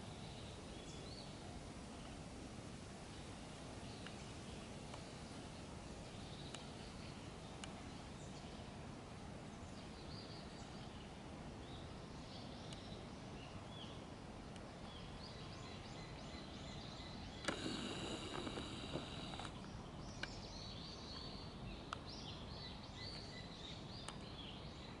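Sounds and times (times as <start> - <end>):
small birds chirping: 0.0 - 2.3, 3.1 - 25.0
faint ticks: 4.0 - 5.1, 6.4 - 6.8, 7.5 - 7.8, 17.4 - 20.4.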